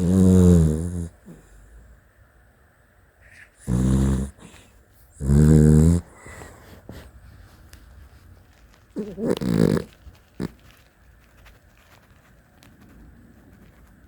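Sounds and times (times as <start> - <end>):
dog snoring loudly: 0.0 - 1.4, 3.6 - 4.6, 5.2 - 6.3, 9.0 - 10.5.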